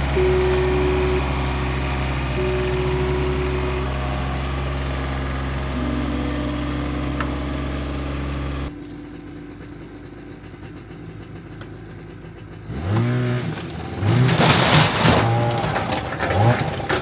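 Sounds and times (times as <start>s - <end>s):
pitch-bending sounds: 0.0s - 10.6s
engine running: 0.0s - 17.0s.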